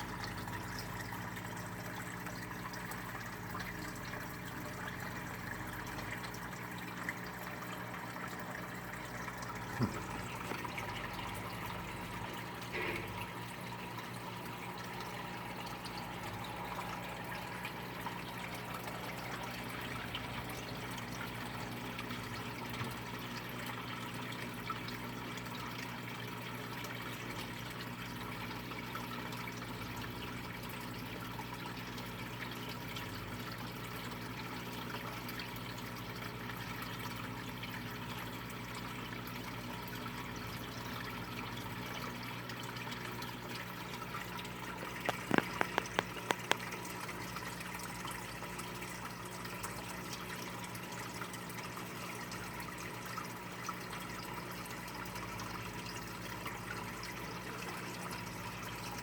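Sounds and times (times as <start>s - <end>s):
low electrical hum: 0.0s - 59.0s.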